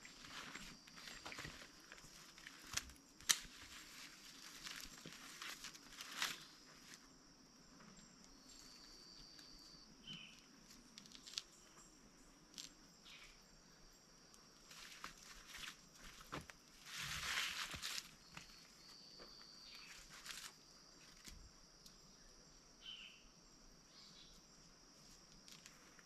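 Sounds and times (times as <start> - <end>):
light rustles and snaps: 1.0 - 7.0, 10.6 - 11.6.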